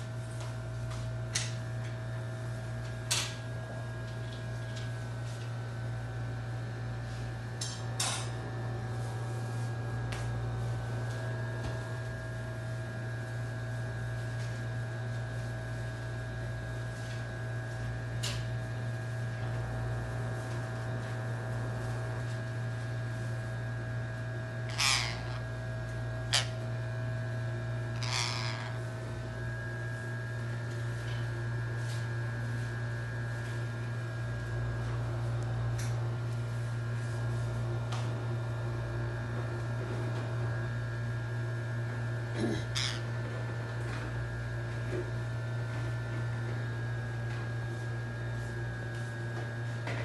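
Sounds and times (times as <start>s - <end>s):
electrical hum: 0.0s - 50.0s
parrot squawking: 24.7s - 25.4s, 26.3s - 26.6s, 27.9s - 28.8s, 42.5s - 43.0s.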